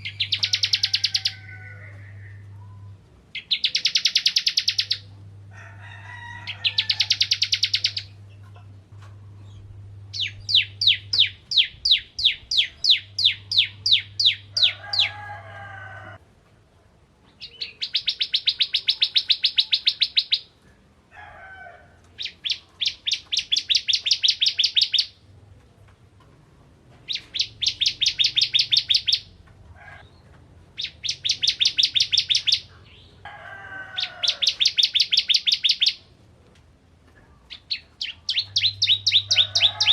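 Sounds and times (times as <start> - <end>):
bird chipping song: 0.0 - 5.2, 6.4 - 8.7, 9.4 - 15.1, 17.2 - 20.6, 22.1 - 25.2, 27.1 - 29.4, 30.0 - 33.2, 34.0 - 36.1, 37.4 - 39.9.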